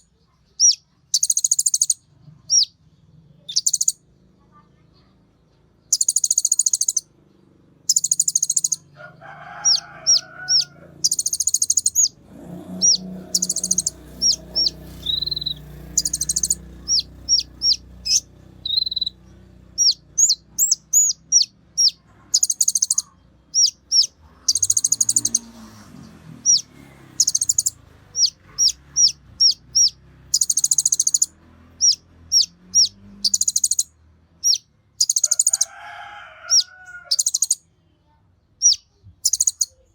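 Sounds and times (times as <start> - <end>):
bird buzzy trills: 5.9 - 7.1, 7.8 - 37.6
bird sharp high chips: 12.8 - 19.2.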